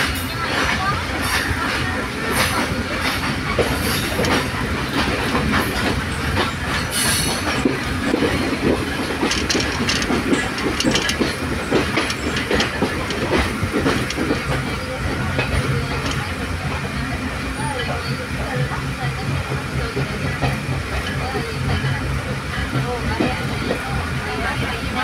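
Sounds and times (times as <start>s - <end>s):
wheels clattering over rail joints: 0.0s - 17.2s
train rumble: 0.0s - 25.0s.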